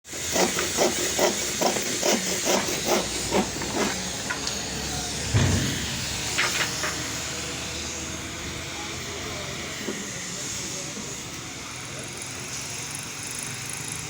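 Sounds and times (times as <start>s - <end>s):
heavy thump: 5.3s - 6.6s.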